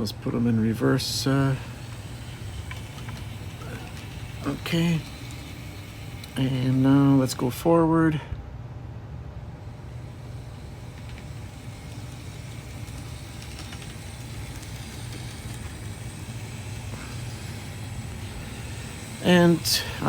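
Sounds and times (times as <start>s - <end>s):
model train motors humming: 0.0s - 8.4s, 9.4s - 20.0s
faint clicks: 9.8s - 19.7s.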